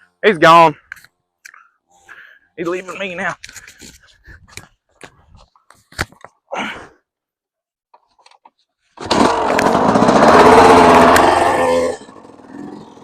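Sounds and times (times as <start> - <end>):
dirt bike engine revving: 9.0 - 13.0.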